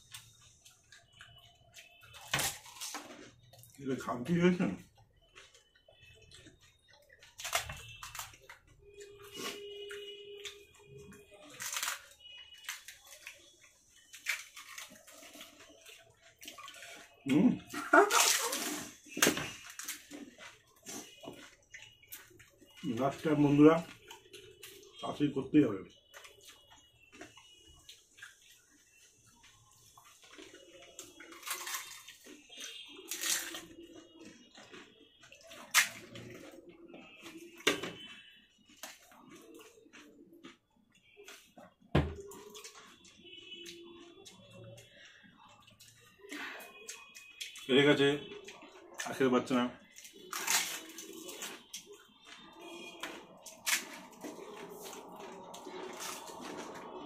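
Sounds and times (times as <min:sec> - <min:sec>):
crunching fried shells: 0:00.0 - 0:57.0
crisp shells crunching: 0:11.4 - 0:13.5, 0:31.2 - 0:32.4, 0:49.9 - 0:57.0
wet slurping: 0:53.5 - 0:57.0.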